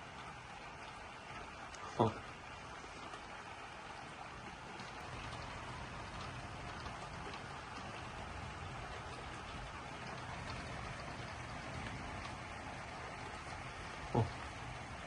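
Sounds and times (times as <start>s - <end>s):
rain drop ticks: 0.0s - 15.0s
steady rain falling: 0.0s - 15.0s
rumble of thunder: 4.6s - 15.0s.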